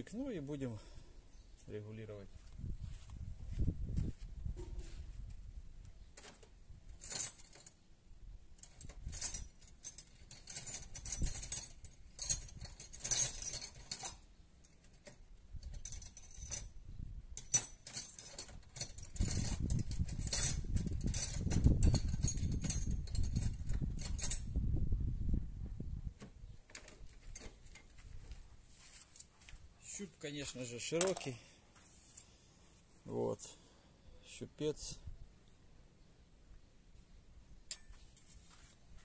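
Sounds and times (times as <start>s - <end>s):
small metal tools clinking: 8.6s - 16.8s, 17.4s - 24.5s, 37.7s - 38.3s
heavy rumbling handling noise: 17.4s - 24.5s.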